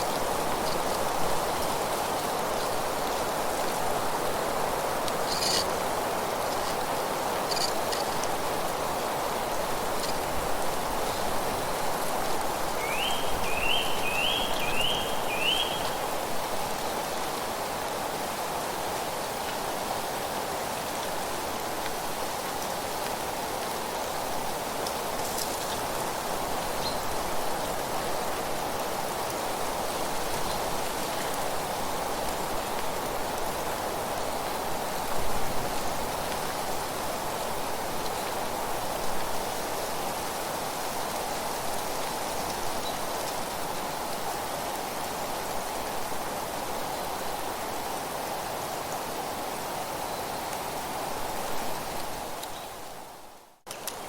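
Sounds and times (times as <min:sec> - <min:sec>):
wind rustling leaves: 0:00.0 - 0:54.0
bird calling: 0:12.8 - 0:16.0.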